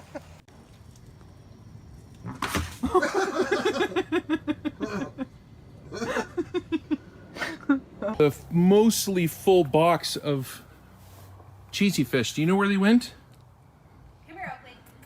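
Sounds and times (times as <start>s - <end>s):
person laughing in rapid bursts: 2.8s - 5.3s, 5.9s - 8.2s.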